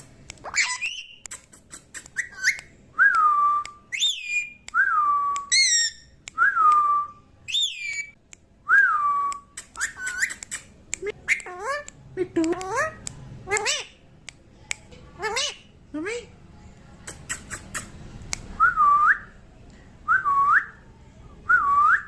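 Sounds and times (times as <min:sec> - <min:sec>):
parrot whistling: 0:00.4 - 0:01.2, 0:02.0 - 0:02.7, 0:05.4 - 0:06.6.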